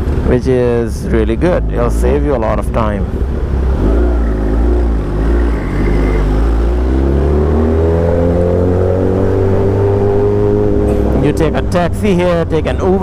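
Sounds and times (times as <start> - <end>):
motorcycle engine accelerating: 3.1 - 12.8.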